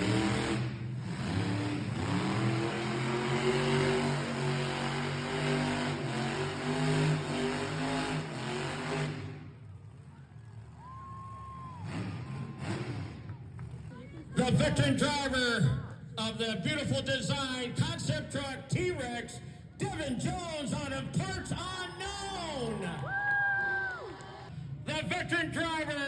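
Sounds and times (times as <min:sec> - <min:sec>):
truck engine revving loudly: 0:00.0 - 0:10.0, 0:11.7 - 0:13.8.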